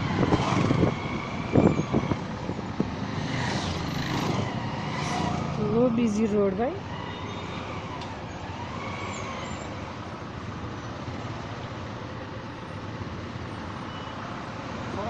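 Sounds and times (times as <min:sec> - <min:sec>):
vehicle engines: 0:00.0 - 0:15.0.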